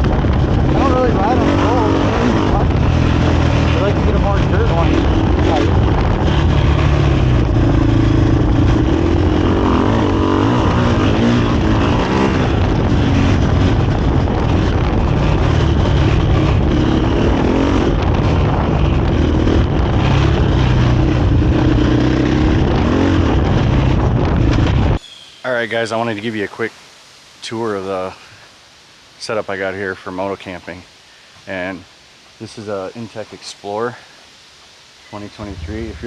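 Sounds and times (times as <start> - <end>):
motorcycle engine revving: 0.0 - 25.0, 35.3 - 36.0.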